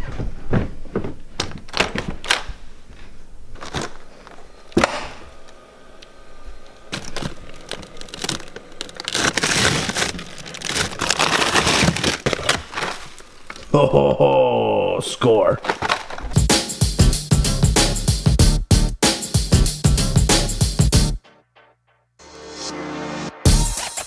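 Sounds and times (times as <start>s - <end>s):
footsteps going down stairs: 0.0s - 3.8s
rustling crinkling noise: 0.0s - 4.8s, 5.4s - 13.8s, 15.4s - 16.4s
rummaging: 0.0s - 5.0s, 6.9s - 13.7s, 15.3s - 16.4s.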